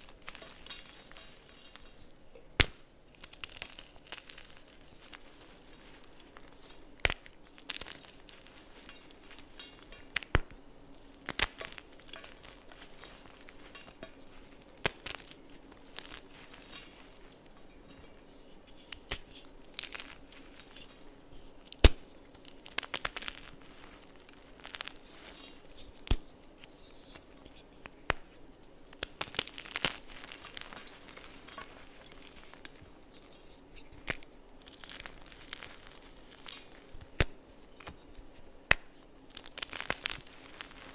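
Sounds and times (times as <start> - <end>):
soft crackle of crumbling chalk: 0.0 - 40.9.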